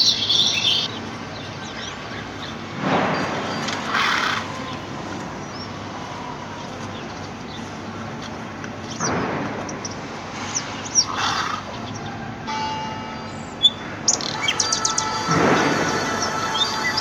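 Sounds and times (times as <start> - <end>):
birds chirping: 0.0 - 17.0
steady ringing tone: 12.5 - 17.0.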